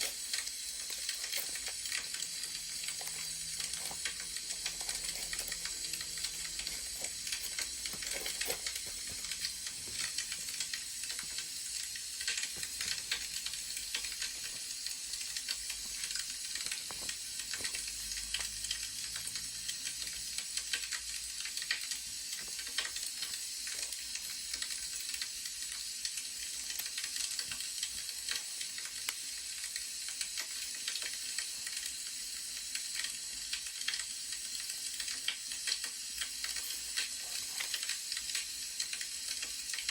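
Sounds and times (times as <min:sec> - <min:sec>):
wood fire crackling: 0:00.0 - 0:18.8.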